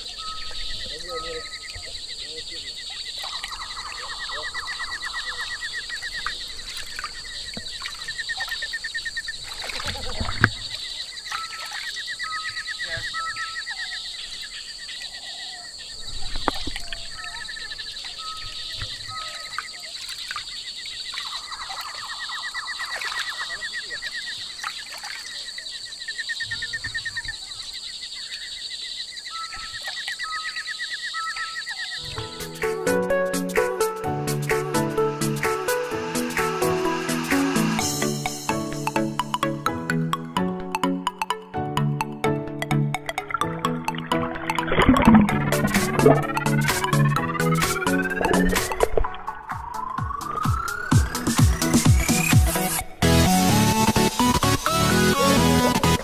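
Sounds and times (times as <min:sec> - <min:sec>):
whistled bird notes: 0:00.0 - 0:08.8, 0:10.5 - 0:25.4, 0:29.3 - 0:38.4, 0:43.9 - 0:56.0
animal chirps in chorus: 0:00.0 - 0:32.7
high insect drone: 0:00.0 - 0:39.2.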